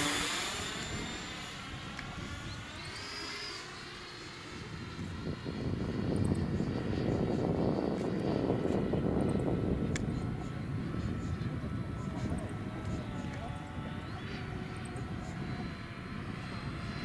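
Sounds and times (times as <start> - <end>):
low rushing noise: 0.0 - 7.6
model jet motor whine: 0.0 - 17.0.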